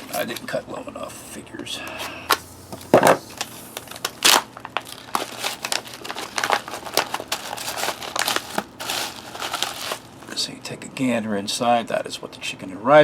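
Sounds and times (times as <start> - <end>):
food pouch crinkling: 3.3 - 10.4.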